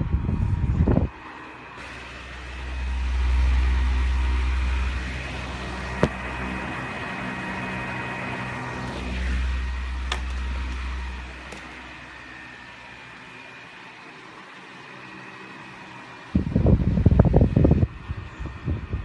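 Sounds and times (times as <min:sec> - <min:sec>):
wind rumbling on microphone: 0:00.0 - 0:01.2, 0:16.4 - 0:19.0
table fan motor hum: 0:00.0 - 0:19.0.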